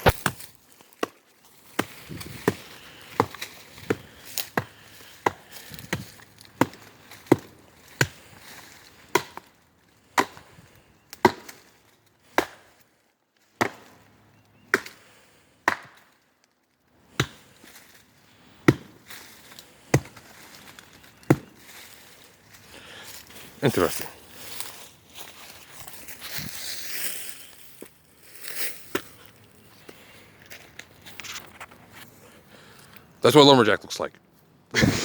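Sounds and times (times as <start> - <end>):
wood being chopped: 0.0 - 12.9, 13.6 - 14.1, 14.7 - 15.0, 15.6 - 16.2, 17.0 - 17.6, 18.6 - 21.7, 28.9 - 29.1.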